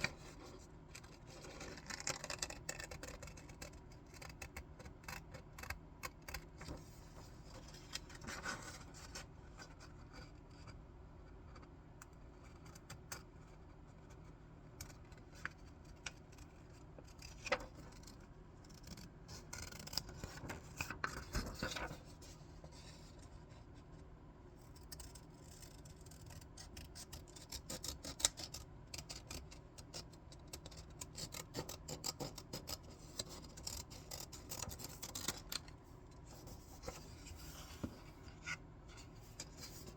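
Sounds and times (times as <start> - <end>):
scissors snipping paper: 1.1 - 6.6, 24.6 - 35.6.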